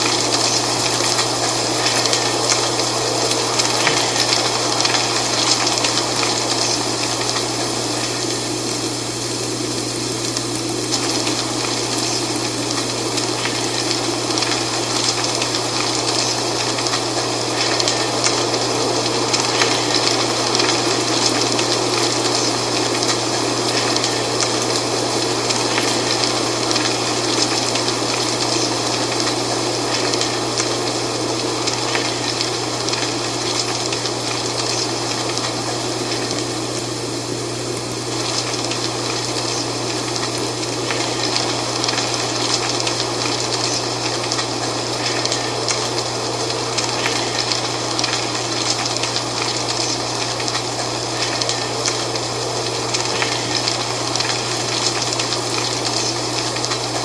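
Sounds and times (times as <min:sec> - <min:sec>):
wind rustling dry leaves: 0:00.0 - 0:57.0.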